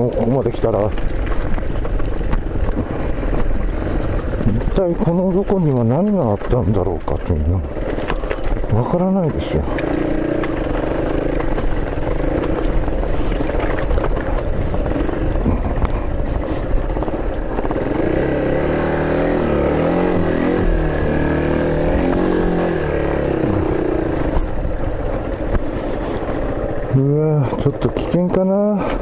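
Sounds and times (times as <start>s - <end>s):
road rumble: 0.0s - 29.0s
vehicle engine running: 0.0s - 29.0s.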